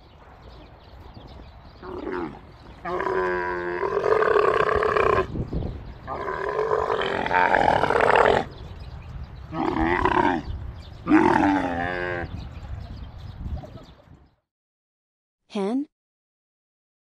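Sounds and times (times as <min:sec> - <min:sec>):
camels calling: 0:01.8 - 0:05.4, 0:06.0 - 0:08.7, 0:09.5 - 0:12.4.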